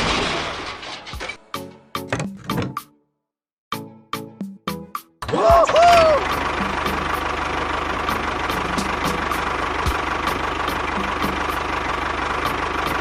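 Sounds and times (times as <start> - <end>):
tractor engine idling: 5.3 - 13.0.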